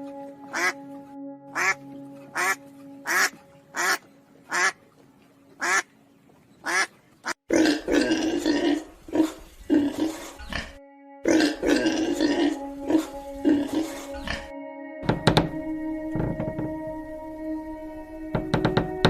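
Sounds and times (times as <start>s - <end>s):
soft background music: 0.0s - 6.9s, 9.7s - 19.0s
duck quacking: 0.5s - 0.8s, 1.5s - 4.8s, 5.6s - 5.9s, 6.6s - 7.8s
animal grunting: 7.5s - 14.5s.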